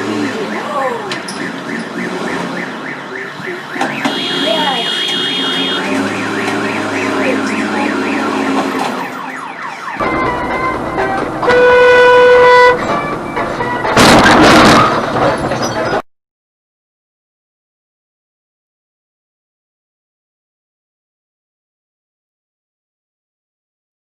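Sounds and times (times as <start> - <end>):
electronic siren warbling: 0.1 - 13.6
vehicle horn blast: 4.0 - 8.6, 10.9 - 12.9.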